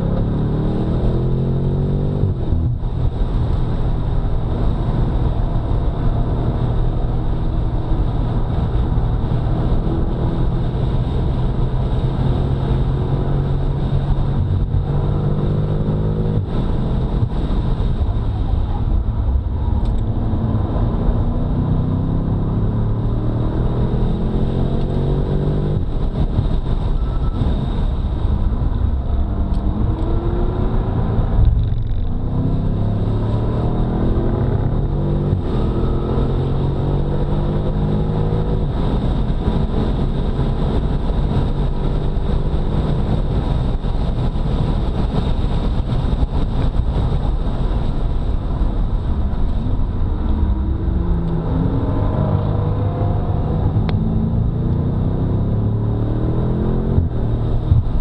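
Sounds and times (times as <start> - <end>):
car engine revving hard: 0.0 - 3.2, 9.2 - 17.9, 20.2 - 28.1, 29.5 - 45.4, 48.2 - 58.0
wind rush: 0.0 - 58.0.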